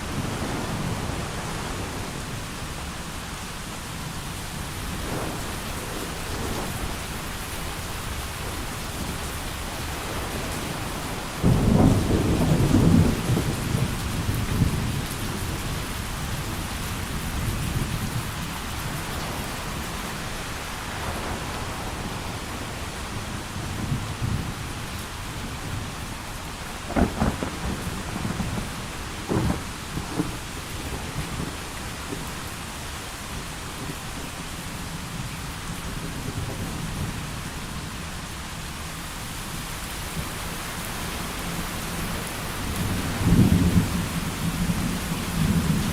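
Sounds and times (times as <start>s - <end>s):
heavy rain: 0.0s - 45.9s
thunder rumbling: 4.0s - 32.4s, 40.2s - 45.9s
sharp thunder cracks: 26.9s - 30.4s.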